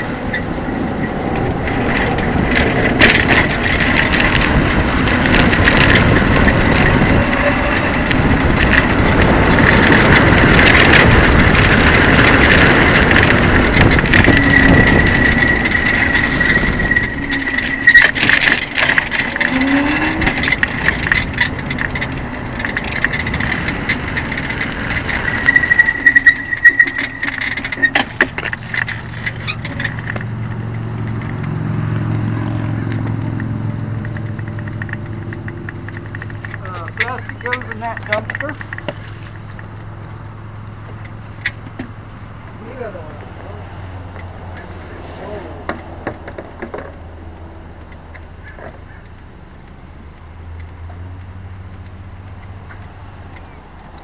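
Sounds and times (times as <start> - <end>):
wind and rolling noise: 0.0 - 54.0
rattles and sharp knocks: 1.0 - 40.1, 45.6 - 49.3
thin high whine: 24.5 - 28.9.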